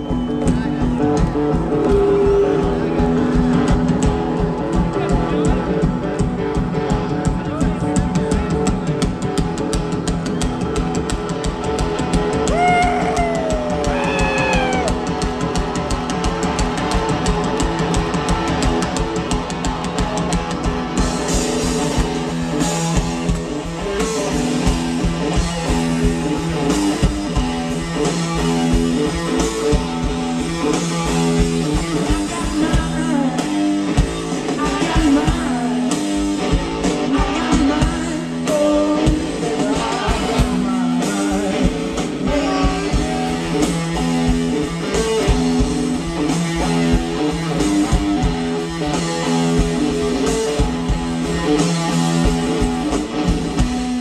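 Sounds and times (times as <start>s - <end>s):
drum kit: 0.0s - 54.0s
person singing: 1.7s - 3.0s, 12.5s - 14.9s, 34.5s - 36.2s, 36.8s - 43.4s
electric guitar riff: 11.3s - 54.0s.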